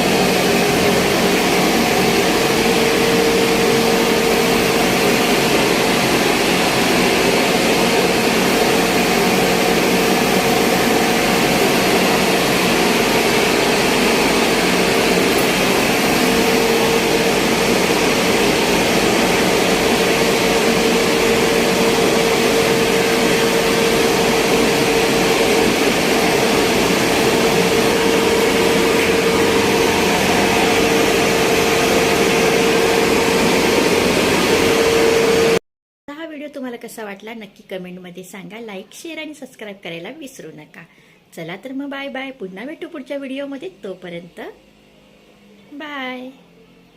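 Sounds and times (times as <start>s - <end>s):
electric machinery humming: 0.0s - 35.6s.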